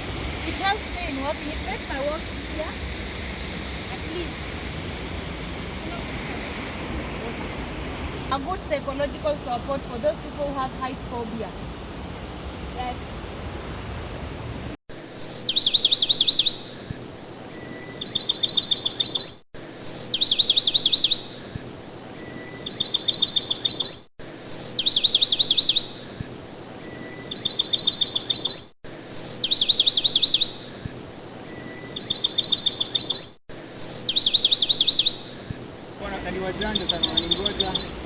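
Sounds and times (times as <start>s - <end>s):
bird call with trills: 36.0s - 38.0s.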